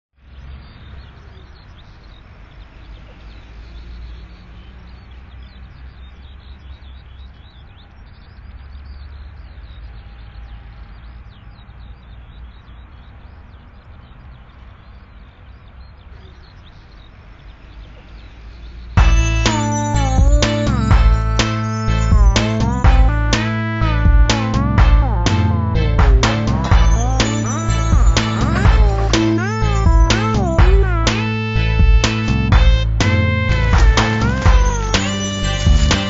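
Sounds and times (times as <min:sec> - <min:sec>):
birds chirping: 0:00.2 - 0:36.0
low outdoor rumble: 0:18.8 - 0:36.0.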